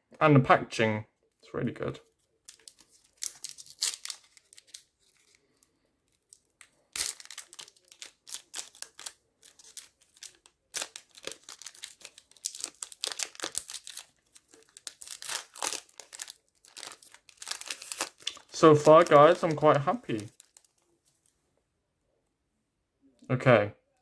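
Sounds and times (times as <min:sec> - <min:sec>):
card pack wrapper crinkling: 0:02.4 - 0:21.3.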